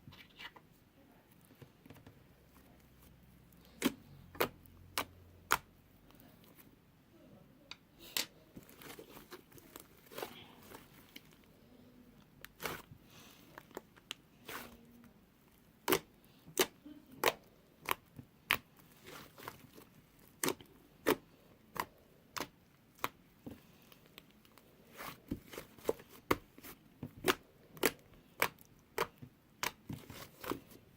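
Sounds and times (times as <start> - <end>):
slime squishing: 1.3 - 6.8, 8.1 - 30.9.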